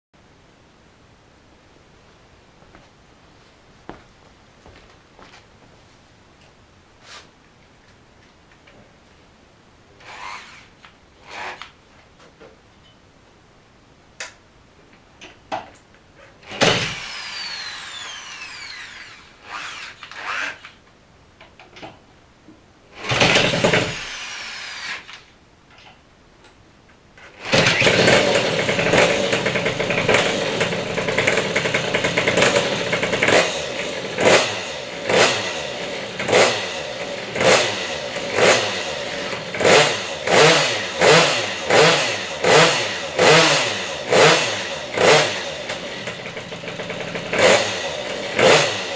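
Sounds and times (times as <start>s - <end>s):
minibike engine cranking: 16.5s - 20.6s, 27.4s - 48.9s
minibike engine running: 27.4s - 40.3s, 41.1s - 48.9s
engine revved in blips: 37.4s - 45.6s.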